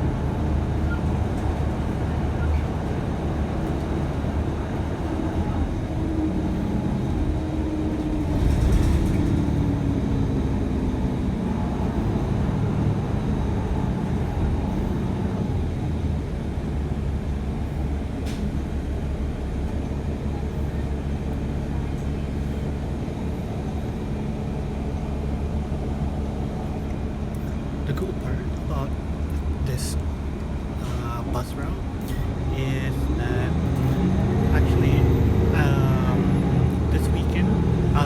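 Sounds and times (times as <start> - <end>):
bus engine rumble: 0.0 - 38.0.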